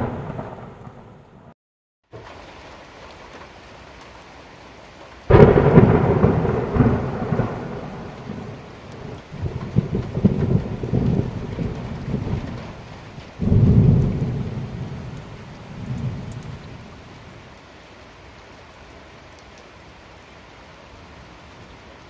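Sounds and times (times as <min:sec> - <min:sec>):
thunder rumbling: 0:00.0 - 0:01.6, 0:05.3 - 0:17.0
steady rain falling: 0:00.0 - 0:22.0.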